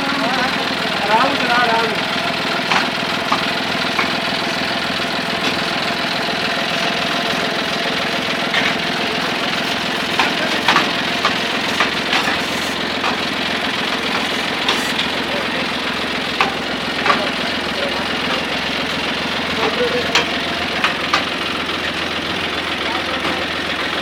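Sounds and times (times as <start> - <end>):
tractor diesel engine running: 0.0 - 24.0
sharp clicks and knocks: 2.6 - 4.7, 9.8 - 21.6.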